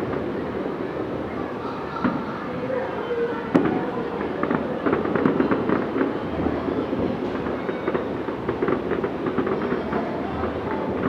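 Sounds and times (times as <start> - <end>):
fireworks pops and crackles: 0.0 - 2.6, 3.5 - 11.0
fireworks rumbling: 0.0 - 11.0.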